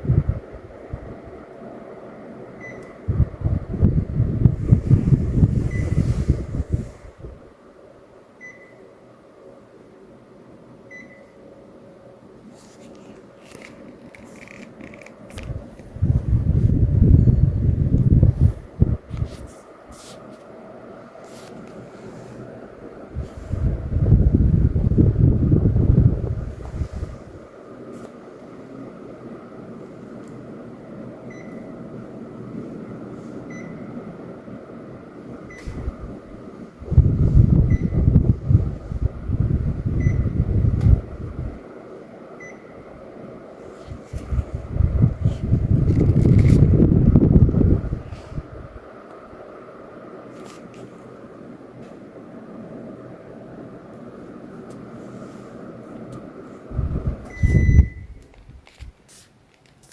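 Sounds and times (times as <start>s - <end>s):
wind rumble on microphone: 0.0s - 1.4s, 3.0s - 7.6s, 15.3s - 19.6s, 23.1s - 27.5s, 35.6s - 41.6s, 43.8s - 48.9s, 56.7s - 58.9s
air conditioner airflow: 0.0s - 59.9s.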